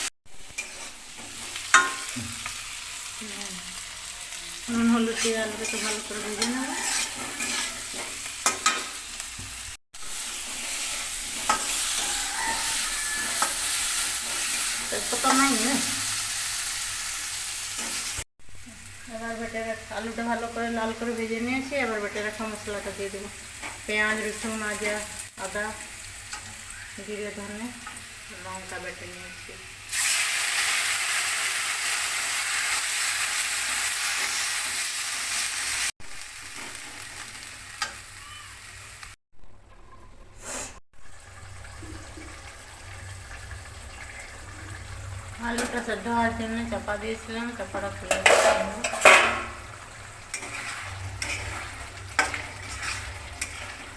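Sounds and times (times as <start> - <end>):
potatoes sizzling in oil: 0.0 - 39.2, 41.0 - 53.9
spatula scraping pan: 0.5 - 2.5, 4.7 - 9.5, 10.3 - 16.0, 47.9 - 53.9.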